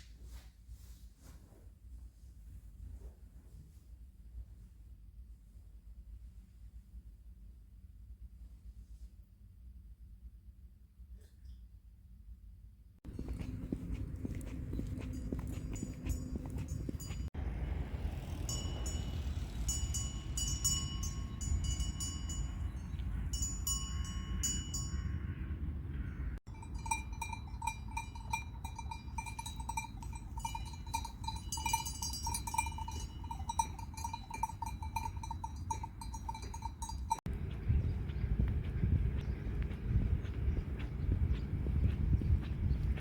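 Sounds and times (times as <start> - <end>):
livestock bells clanking: 13.1 - 17.3, 18.2 - 25.2, 26.5 - 37.3
low outdoor rumble: 13.1 - 43.0.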